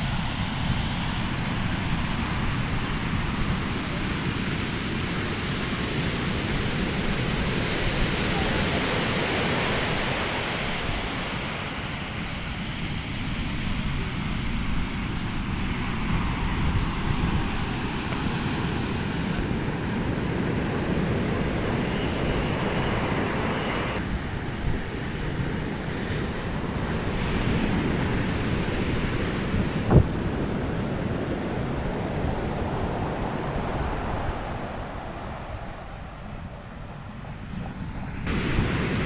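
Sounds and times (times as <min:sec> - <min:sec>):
ocean waves breaking on beach: 0:00.0 - 0:39.0
wind buffeting microphone: 0:19.2 - 0:39.0.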